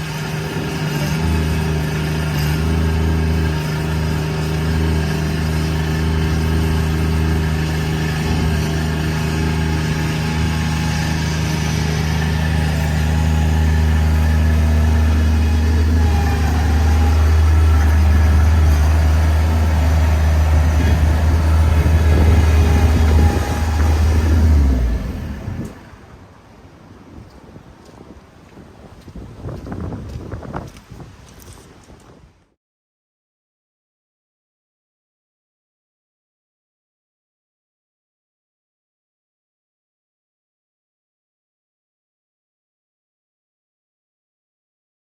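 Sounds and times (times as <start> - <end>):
loader engine running: 0.0 - 26.2.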